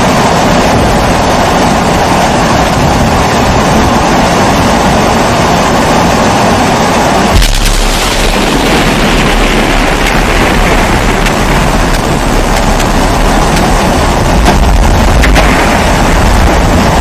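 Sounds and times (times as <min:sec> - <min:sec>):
stove burner roaring: 0:07.4 - 0:17.0.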